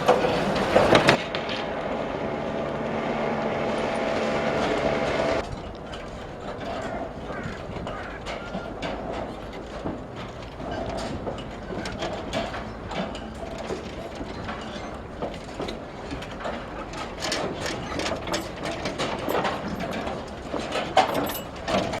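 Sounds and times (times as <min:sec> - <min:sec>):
ratchet mechanism clicking and clattering: 0:08.2 - 0:22.0.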